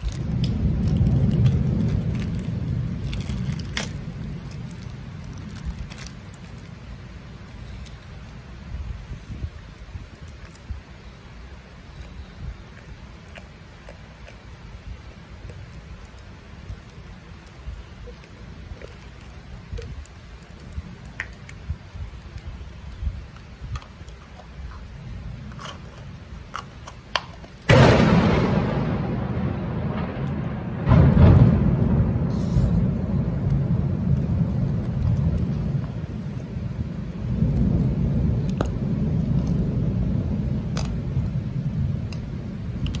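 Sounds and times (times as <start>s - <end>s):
deep rumble of thunder: 0.0s - 6.7s, 27.7s - 43.0s
heavy rain: 0.0s - 43.0s.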